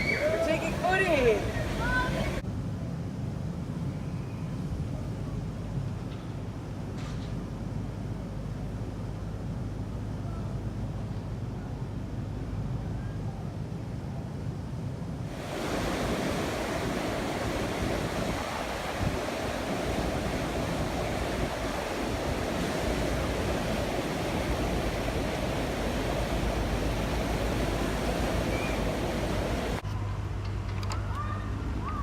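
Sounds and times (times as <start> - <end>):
steady rushing noise: 0.0 - 4.0, 13.7 - 29.9.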